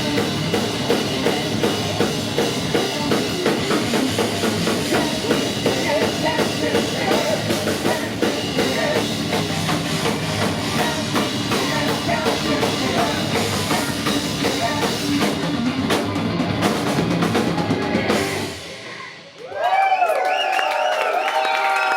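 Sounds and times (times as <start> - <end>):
heavy metal band playing live: 0.0 - 19.4
drum kit: 0.0 - 19.6
crowd cheering: 17.4 - 21.9
whistles: 18.8 - 21.7.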